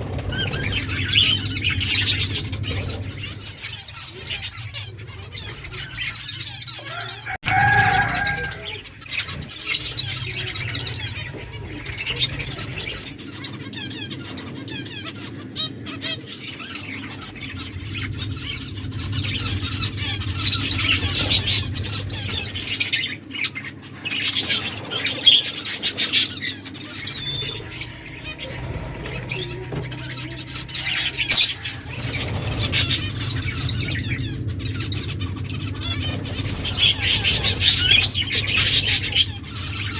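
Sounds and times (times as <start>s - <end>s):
wings fluttering: 0.0s - 6.3s, 7.5s - 13.3s, 17.2s - 23.0s, 26.9s - 39.9s
finches chirping: 0.0s - 6.7s, 7.5s - 13.9s, 17.2s - 23.5s, 26.8s - 39.9s.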